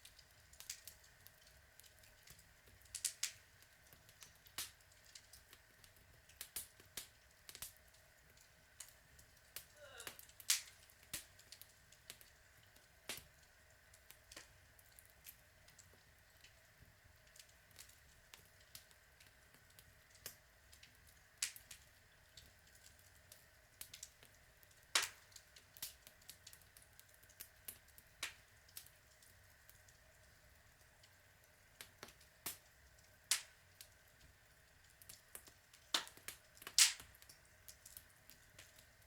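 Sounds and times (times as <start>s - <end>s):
log fire crackling: 0.0s - 39.0s.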